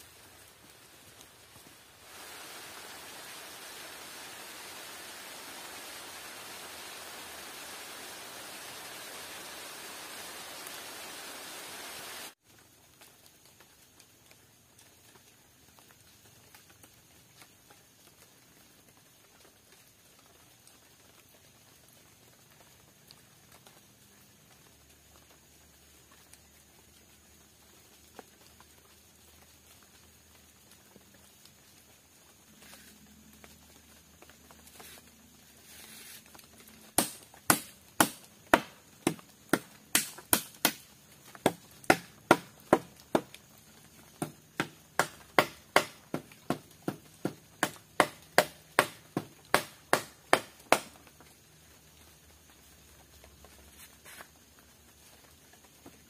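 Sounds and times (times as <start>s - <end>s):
hand tool striking wood: 37.0s - 43.4s, 44.2s - 51.0s.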